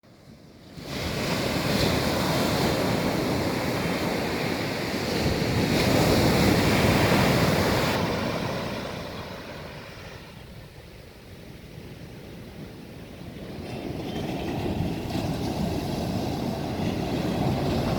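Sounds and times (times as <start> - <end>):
ocean surf washing onto beach: 0.1 - 17.9.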